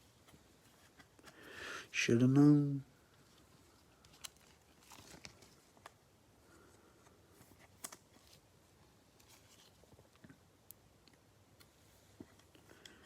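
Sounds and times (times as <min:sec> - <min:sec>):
trading cards rustling: 0:03.1 - 0:06.0.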